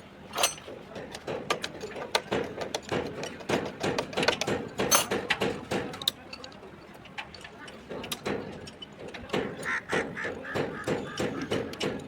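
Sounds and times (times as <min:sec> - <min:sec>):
metal tools clicking on engine parts: 0:00.0 - 0:09.8.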